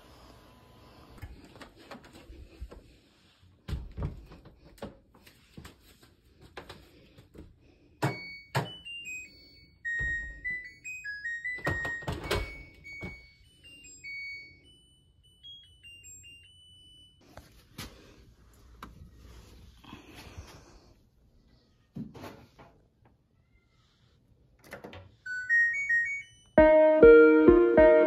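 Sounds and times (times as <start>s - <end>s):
electronic beeping jingle: 25.3s - 28.0s.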